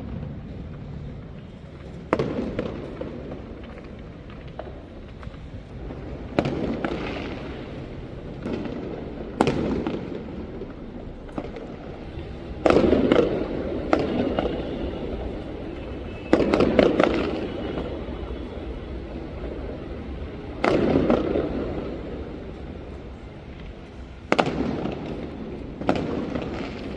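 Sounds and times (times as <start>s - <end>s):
fireworks bangs: 0.0s - 26.9s
small firework cracks: 0.0s - 26.9s.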